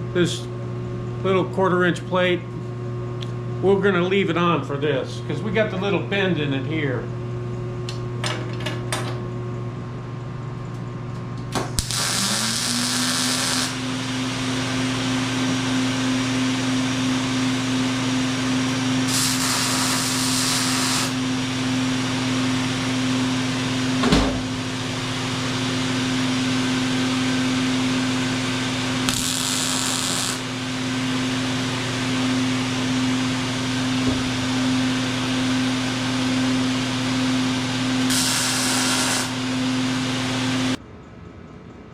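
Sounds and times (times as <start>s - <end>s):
power tool motor running: 11.8s - 16.3s, 18.0s - 21.7s, 29.0s - 30.8s, 37.5s - 40.8s.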